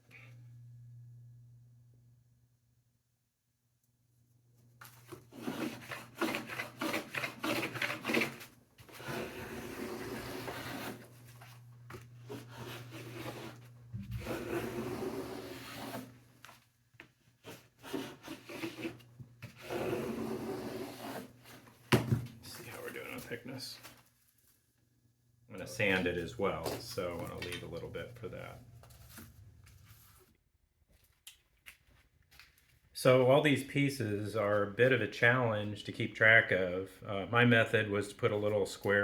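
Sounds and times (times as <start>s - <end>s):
block plane shaving wood: 5.1s - 11.2s, 12.3s - 16.2s, 17.4s - 21.6s.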